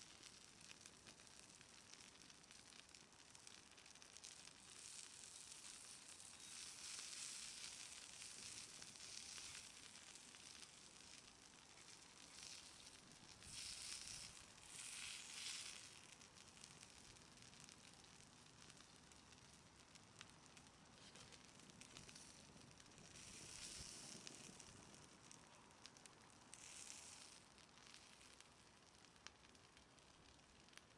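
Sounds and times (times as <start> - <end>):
food sizzling on a griddle: 0.0 - 30.9.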